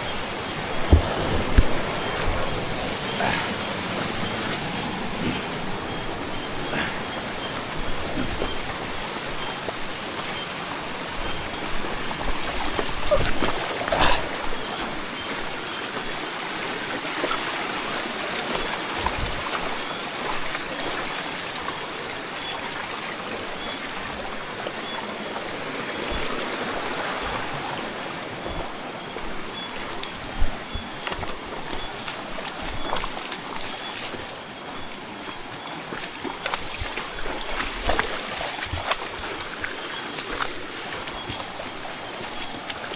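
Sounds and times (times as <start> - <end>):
creek water running over rocks: 0.0 - 42.9.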